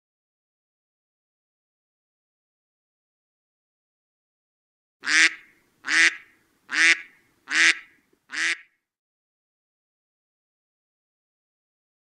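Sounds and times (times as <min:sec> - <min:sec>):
bird quacking calls: 0:05.0 - 0:08.7.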